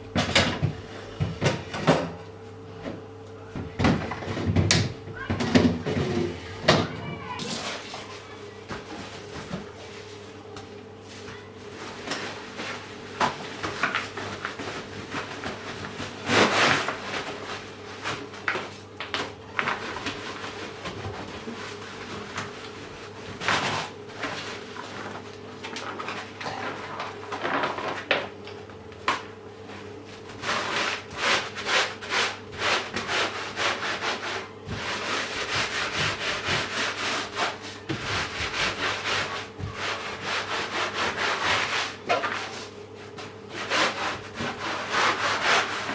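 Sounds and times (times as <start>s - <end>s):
cloth scrubbing a surface: 30.4s - 45.9s.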